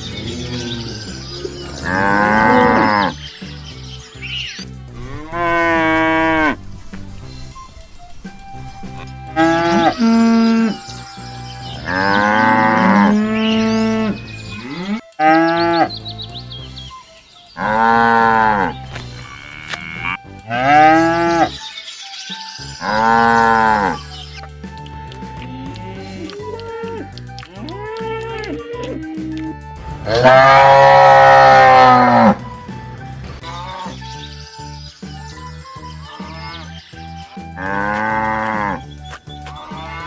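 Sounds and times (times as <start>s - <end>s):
cattle mooing: 0.5s - 3.2s, 5.0s - 6.6s, 30.1s - 32.4s.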